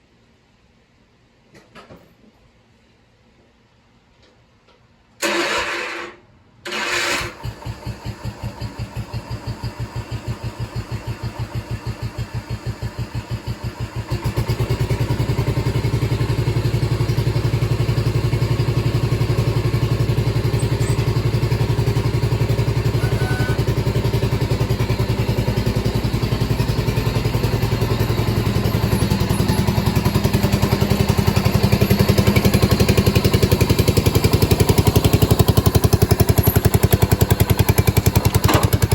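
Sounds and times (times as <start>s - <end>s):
engine cranking: 5.2s - 8.9s, 18.4s - 38.9s
tractor engine running: 6.7s - 38.9s.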